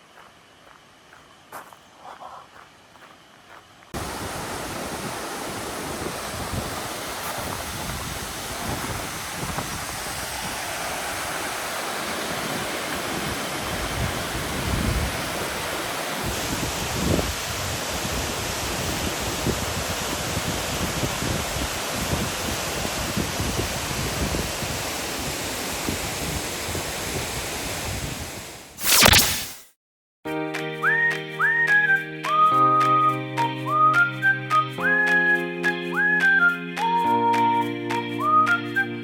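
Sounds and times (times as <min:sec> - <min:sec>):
waterfall roaring: 0:04.0 - 0:21.0.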